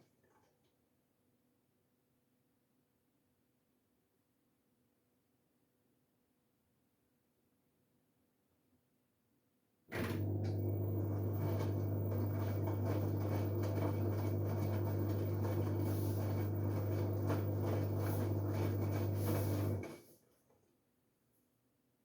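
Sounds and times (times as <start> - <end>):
washing machine water filling: 9.9 - 20.0.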